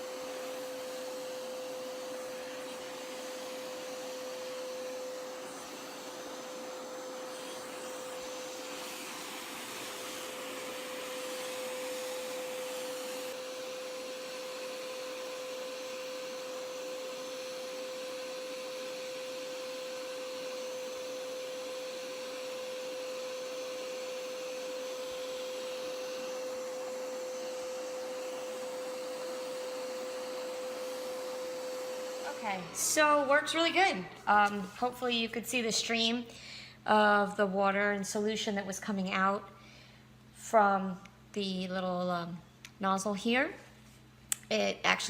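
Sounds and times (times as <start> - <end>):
carpet cleaner suction whine: 0.0 - 36.3.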